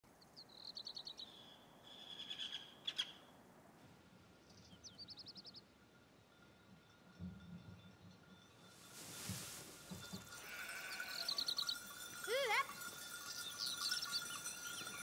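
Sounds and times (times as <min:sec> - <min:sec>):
small birds chirping: 0:00.2 - 0:03.3, 0:04.4 - 0:05.7, 0:10.5 - 0:15.0.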